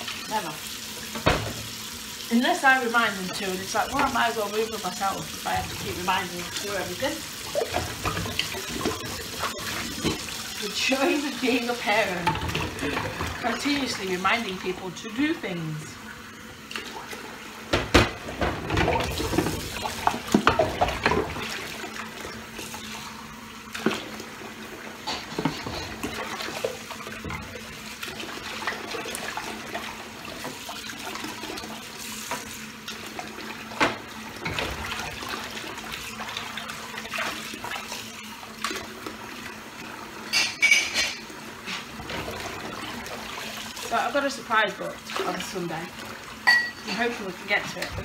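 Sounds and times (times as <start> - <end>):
tap running into sink: 1.0 - 1.8, 17.7 - 21.5
glass and crockery clinking: 40.3 - 41.2, 46.4 - 47.1.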